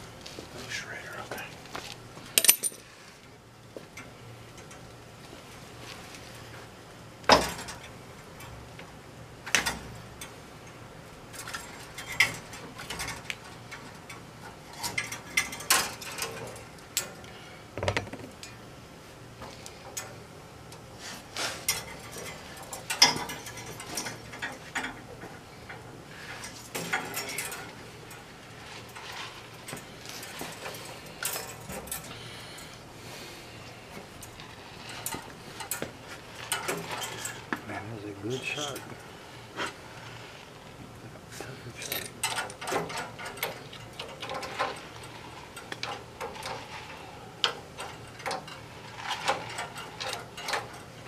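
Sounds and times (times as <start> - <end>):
metallic tool clicks and clinks: 2.4 - 2.8
sharp knocks: 17.8 - 18.3.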